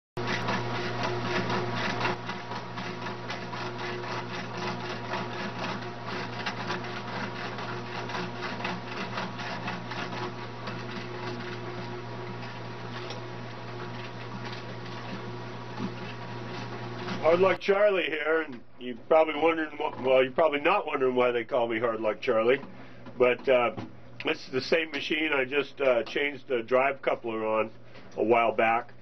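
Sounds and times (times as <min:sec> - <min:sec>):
machine motor humming: 0:00.2 - 0:17.6.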